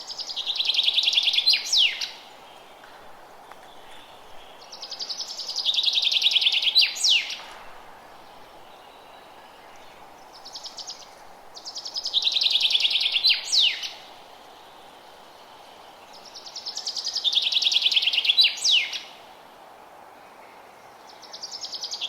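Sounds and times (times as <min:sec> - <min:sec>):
faint background hiss: 0:00.0 - 0:22.0
songbird trilling: 0:12.0 - 0:14.0.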